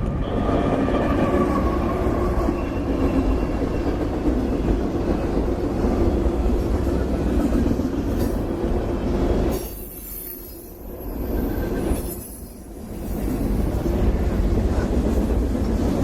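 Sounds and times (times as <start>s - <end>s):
freight train rumbling on rails: 0.0s - 16.0s.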